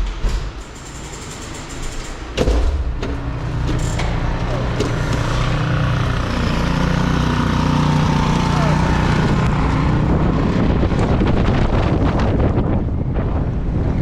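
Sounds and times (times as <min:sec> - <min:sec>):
vehicle engine rumble: 0:02.2 - 0:14.0
sharp knock: 0:02.4 - 0:03.2.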